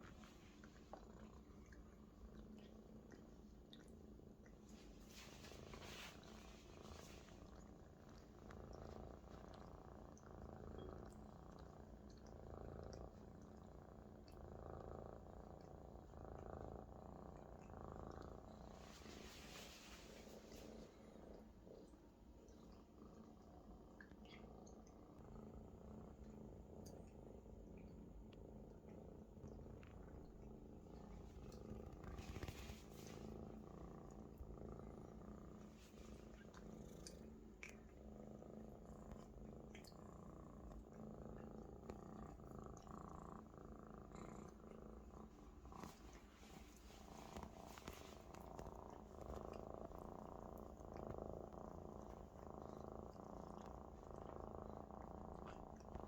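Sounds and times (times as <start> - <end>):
kitten purring: 0.0 - 56.0.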